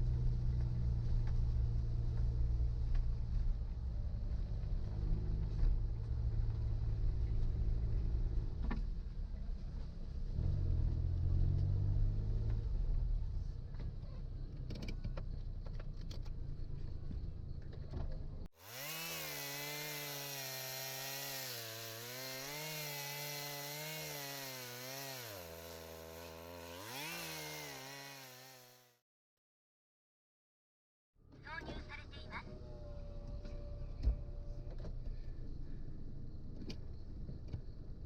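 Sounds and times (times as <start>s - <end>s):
vehicle engine rumbling: 0.0s - 28.4s, 31.2s - 38.0s
chainsaw revving: 18.6s - 29.0s.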